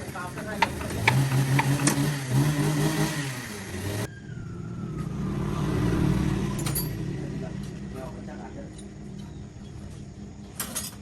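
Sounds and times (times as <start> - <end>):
engine running: 0.0 - 11.0
low rumble: 4.1 - 10.5.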